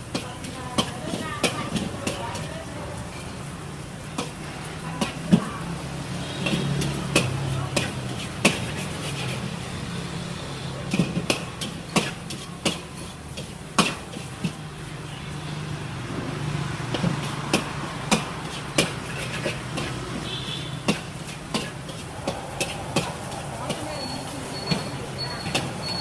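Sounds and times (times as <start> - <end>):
utensils clinking against cookware: 0.0 - 3.5, 6.4 - 9.5, 10.8 - 14.6, 16.9 - 26.0.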